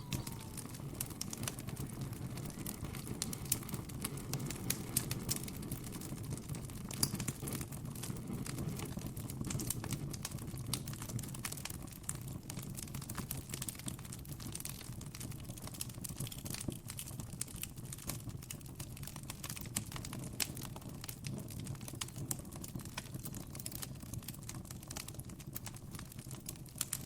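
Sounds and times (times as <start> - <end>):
low rush of burning: 0.0 - 5.7
campfire crackling: 0.0 - 27.0.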